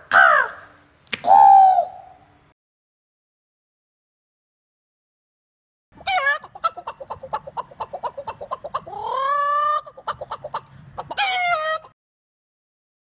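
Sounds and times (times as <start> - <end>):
cat meowing: 11.2 - 11.9.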